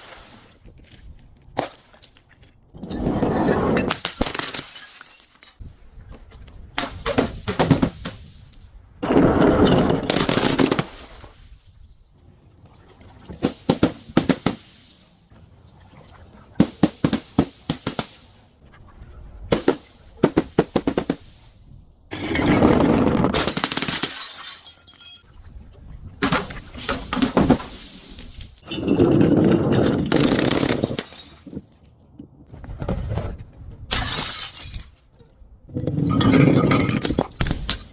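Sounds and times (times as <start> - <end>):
glass crushing and breaking: 3.9 - 5.6, 9.6 - 11.4, 22.1 - 25.2, 26.3 - 31.7, 33.9 - 35.2, 35.9 - 37.9
glass shattering: 3.9 - 5.6, 23.4 - 25.2, 29.9 - 31.6, 33.9 - 35.1, 36.1 - 37.9.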